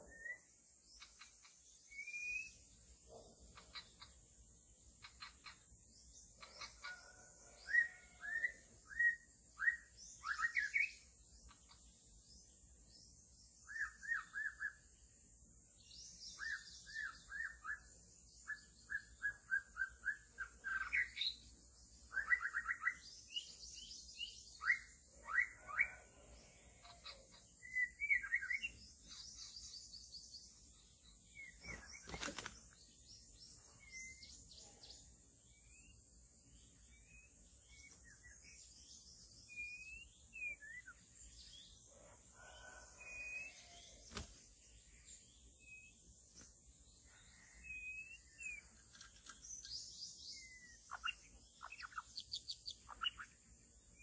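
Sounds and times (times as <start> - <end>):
songbird whistling calls: 0.0 - 1.3, 1.9 - 2.6, 7.7 - 11.0, 13.6 - 14.8, 16.3 - 21.4, 22.1 - 23.5, 24.1 - 26.0, 27.0 - 29.6, 39.5 - 41.0, 50.3 - 53.3
steady high-pitched hiss: 0.0 - 25.5, 26.1 - 54.0.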